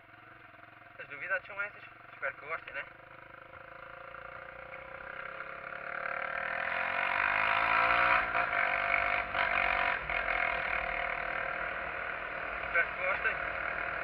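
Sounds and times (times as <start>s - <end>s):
motorcycle engine pulling away: 0.0s - 14.0s.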